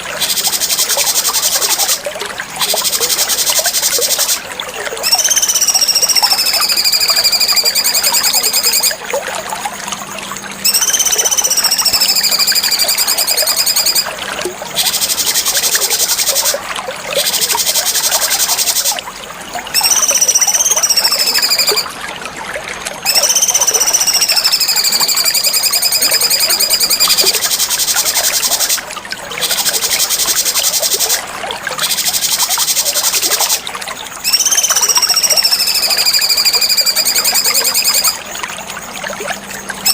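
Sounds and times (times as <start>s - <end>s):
songbird buzzy whistled song: 5.0s - 9.0s, 10.6s - 14.1s, 19.7s - 21.9s, 23.0s - 28.8s, 34.2s - 38.2s.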